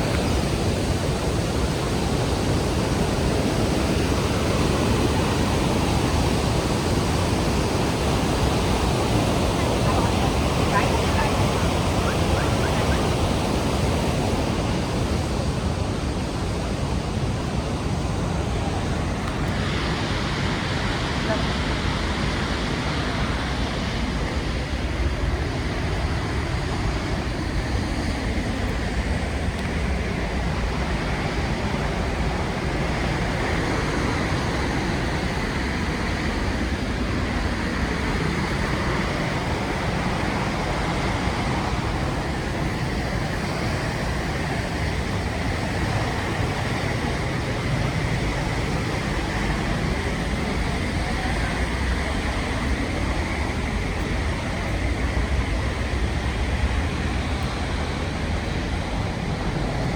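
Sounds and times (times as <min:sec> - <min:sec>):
waterfall rushing: 0:00.0 - 0:16.7, 0:30.0 - 0:54.6.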